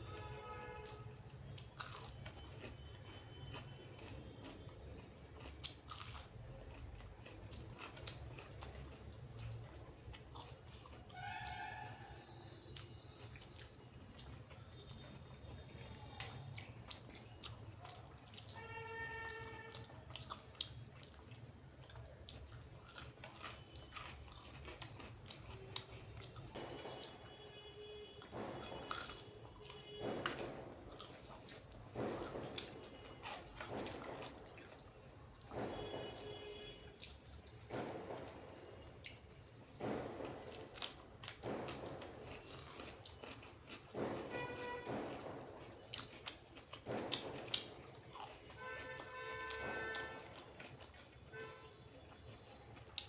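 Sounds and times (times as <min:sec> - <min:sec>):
person biting and chewing food: 0:01.6 - 0:12.0, 0:16.0 - 0:26.5, 0:28.3 - 0:36.0, 0:39.8 - 0:51.3.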